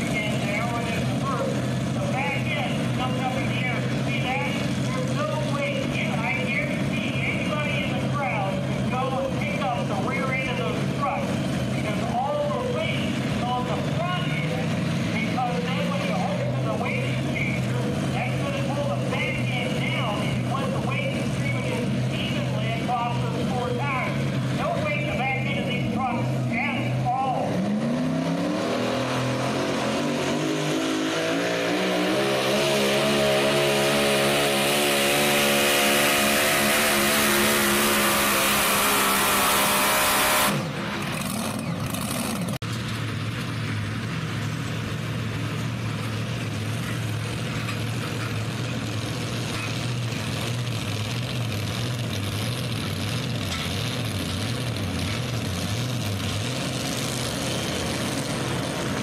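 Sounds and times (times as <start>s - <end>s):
engine idling: 0.0s - 27.5s, 40.6s - 59.0s
pulling truck engine full throttle: 0.0s - 59.0s.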